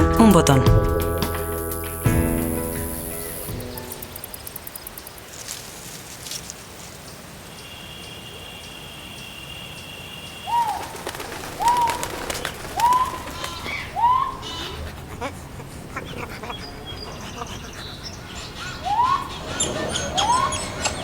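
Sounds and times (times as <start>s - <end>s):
animal high whistle: 18.9s - 21.0s.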